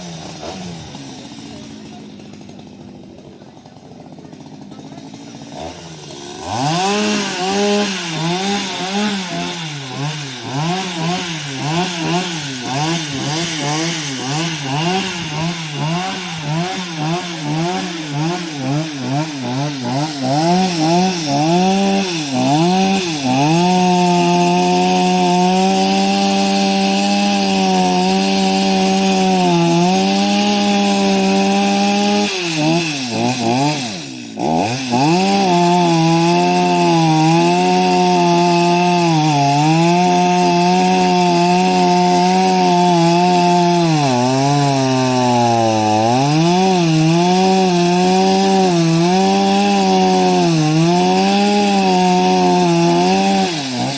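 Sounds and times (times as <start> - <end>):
chainsaw cutting wood: 0.0 - 53.9.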